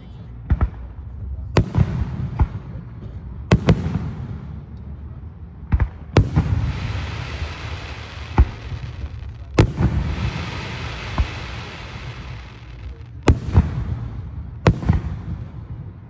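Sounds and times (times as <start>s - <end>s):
fireworks booming: 0.4s - 4.7s, 5.7s - 16.0s
fireworks hiss: 6.2s - 13.6s.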